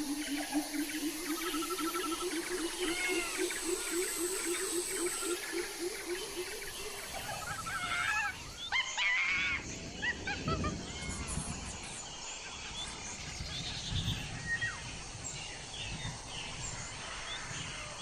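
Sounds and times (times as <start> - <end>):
steady high whine: 0.0 - 8.8
low pulsing animal call: 0.0 - 11.2
high chirping and warbling calls: 0.0 - 12.0.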